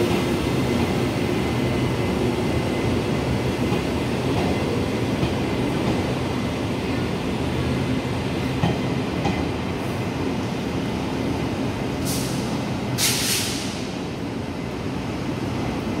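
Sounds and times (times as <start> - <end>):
freight train rumbling: 0.0 - 16.0
sharp air hisses: 12.0 - 14.0.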